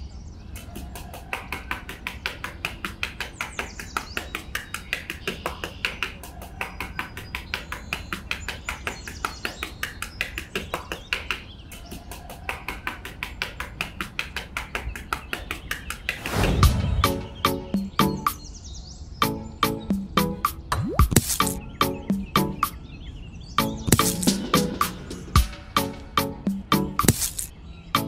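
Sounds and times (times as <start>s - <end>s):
metal trowel scraping sand: 27.0s - 27.5s.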